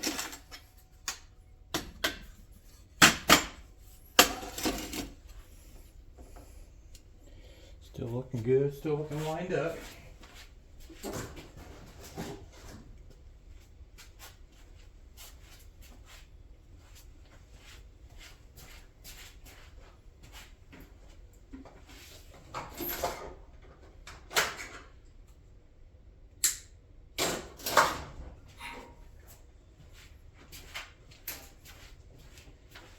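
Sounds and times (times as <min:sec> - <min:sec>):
clicks and knocks of tools: 0:00.0 - 0:02.4.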